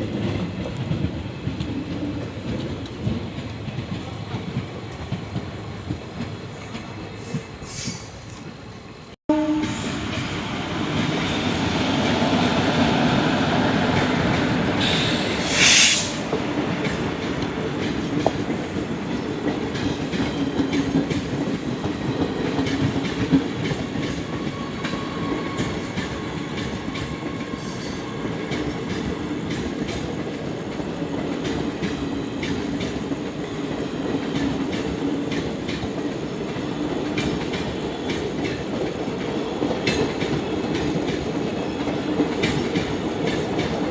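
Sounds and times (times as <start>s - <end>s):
train rumbling on rails: 0.0s - 43.9s
loud burst of hissing: 14.8s - 16.3s.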